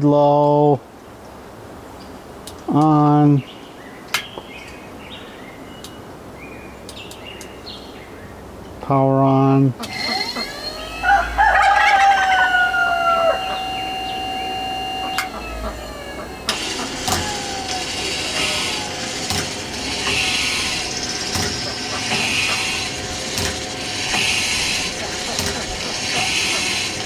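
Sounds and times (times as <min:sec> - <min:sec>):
grinding wheel sharpening blade: 0:09.9 - 0:27.0
rooster crowing: 0:10.4 - 0:17.0.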